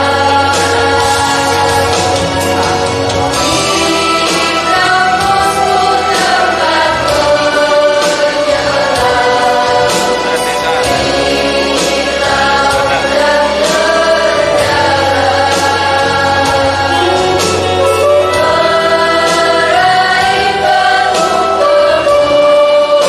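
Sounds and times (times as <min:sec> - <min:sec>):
instrumental accompaniment: 0:00.0 - 0:23.0
mixed choir singing: 0:00.0 - 0:23.0.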